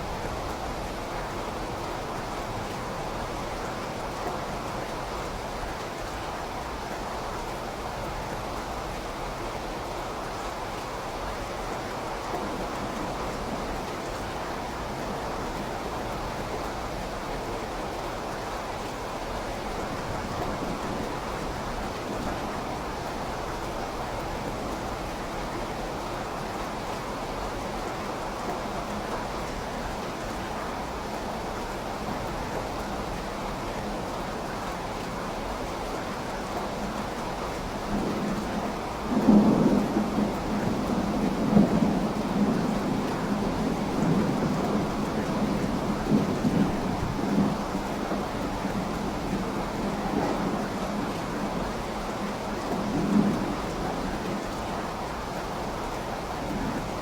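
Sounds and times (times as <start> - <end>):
steady rainfall hiss: 0.0 - 57.0
low thunder rumble: 37.8 - 55.1.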